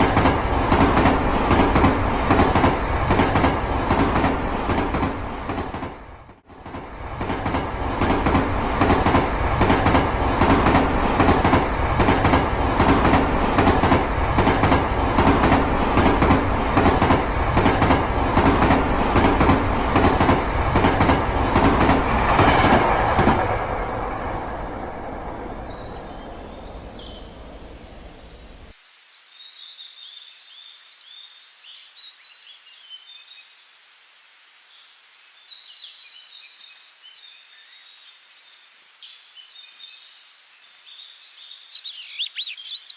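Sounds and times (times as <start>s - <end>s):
wheels clicking over rail joints: 0.0s - 6.0s, 6.7s - 28.6s
high bird chirps: 25.6s - 28.7s, 38.3s - 42.9s.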